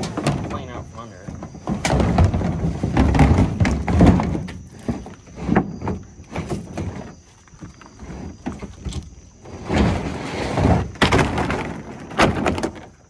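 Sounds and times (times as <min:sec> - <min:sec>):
hollow thumps and knocks: 0:00.0 - 0:13.0
bed liner scraping: 0:09.4 - 0:10.9.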